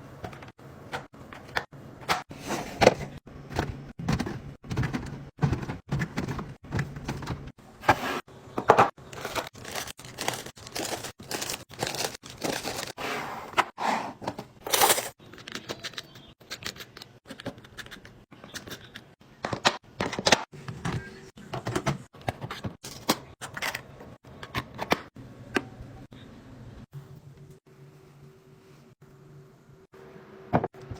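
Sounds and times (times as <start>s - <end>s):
plastic packaging crinkling: 9.1s - 13.0s.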